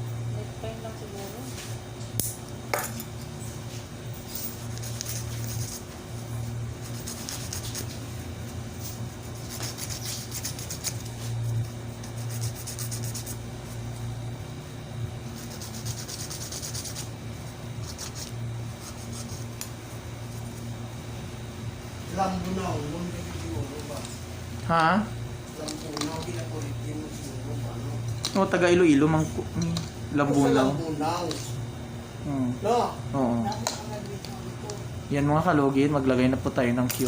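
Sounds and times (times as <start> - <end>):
nail being filed: 4.5 - 6.0, 6.8 - 8.0, 9.2 - 13.4, 15.3 - 17.1, 17.8 - 19.6.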